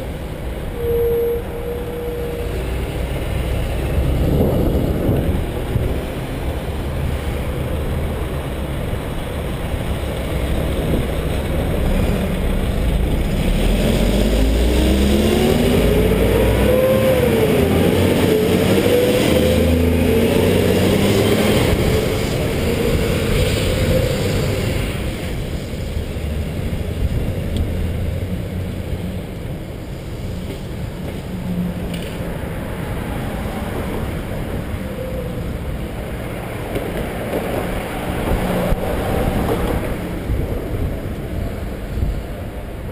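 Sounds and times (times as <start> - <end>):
wind buffeting microphone: 2.6 - 16.2, 35.5 - 42.9
vehicle engine passing by: 10.7 - 25.5.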